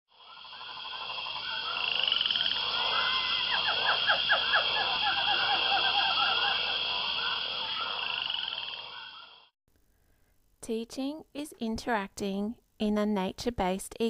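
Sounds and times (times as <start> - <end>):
frogs croaking: 0.1 - 9.5
frogs trilling: 0.1 - 9.5.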